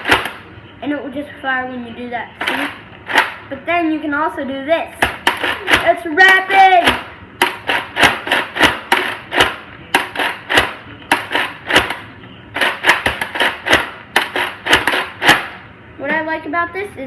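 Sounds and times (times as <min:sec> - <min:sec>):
toy blaster plastic clacks and pops: 0:00.0 - 0:00.4, 0:12.6 - 0:15.6.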